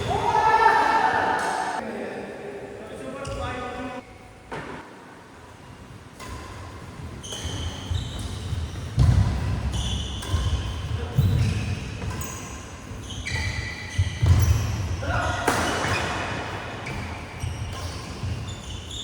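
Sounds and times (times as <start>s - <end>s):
shoes squeaking on floor: 6.3s - 19.0s.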